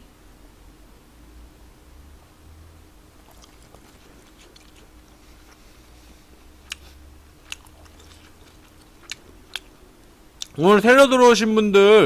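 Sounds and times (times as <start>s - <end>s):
person chewing: 3.1s - 9.8s, 10.4s - 10.6s
wet mouth clicks: 3.2s - 5.6s, 6.6s - 9.7s, 10.4s - 10.6s.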